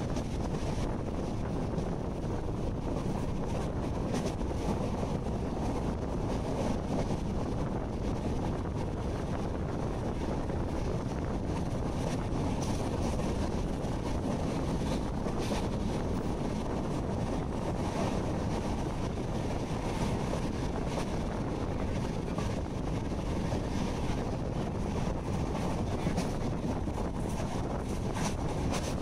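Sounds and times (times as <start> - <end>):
train rumbling on track: 0.0 - 29.0
wind buffeting microphone: 0.0 - 29.0.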